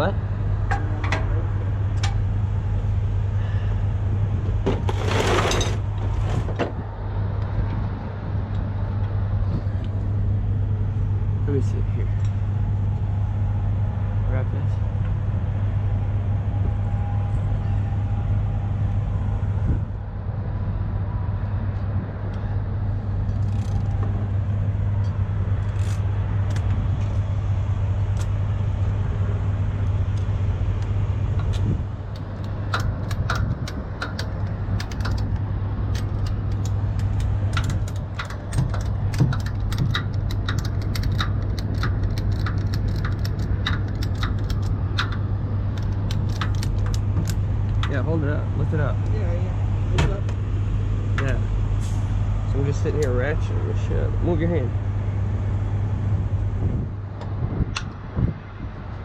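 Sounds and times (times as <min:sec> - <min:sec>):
diesel truck engine idling: 0:00.0 - 0:05.0, 0:05.8 - 0:58.8
ratchet clicking: 0:32.2 - 0:45.2, 0:45.8 - 0:47.4.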